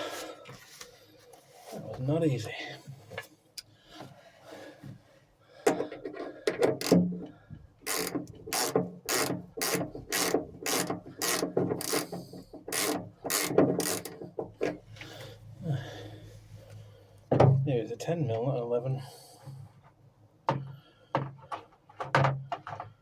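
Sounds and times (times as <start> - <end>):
socket ratchet clicking: 7.8 - 14.2.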